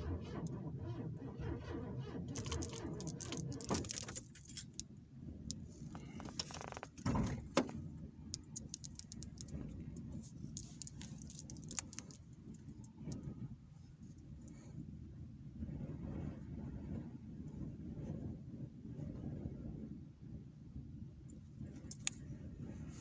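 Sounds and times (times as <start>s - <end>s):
car engine rumbling: 0.0s - 17.2s.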